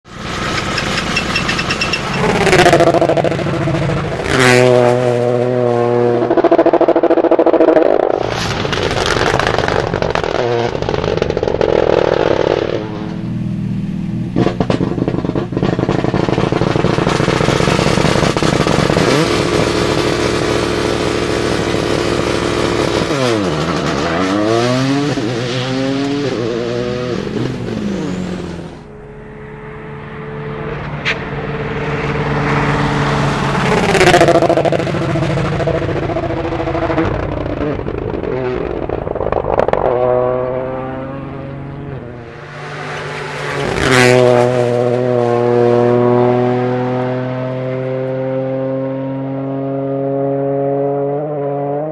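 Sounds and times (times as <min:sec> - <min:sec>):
rally car engine revving hard: 0:00.4 - 0:13.2, 0:14.2 - 0:51.9
exhaust cracks: 0:06.2 - 0:24.4, 0:30.6 - 0:45.2.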